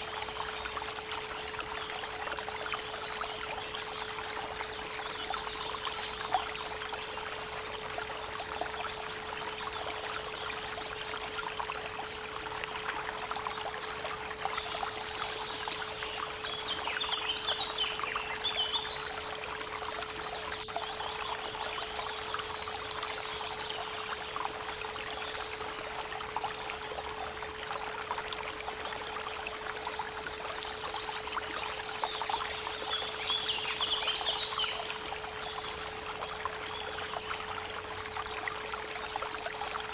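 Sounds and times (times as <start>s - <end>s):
birds singing: 0.0s - 7.3s, 8.4s - 26.7s, 28.6s - 39.9s.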